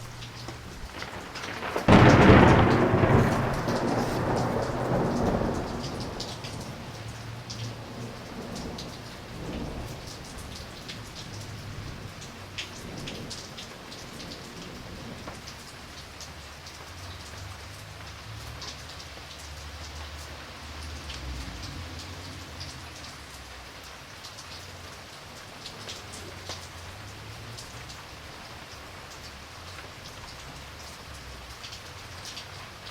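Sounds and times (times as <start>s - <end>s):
thunder rumble: 0.0s - 16.3s, 24.8s - 32.8s
steady rain: 0.0s - 32.9s
water drips: 0.0s - 32.9s.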